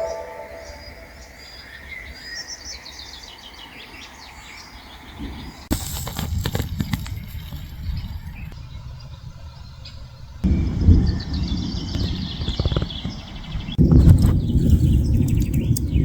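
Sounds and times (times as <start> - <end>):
small birds chirping: 0.0 - 16.0
low rumble with sharp clicks: 6.4 - 16.0.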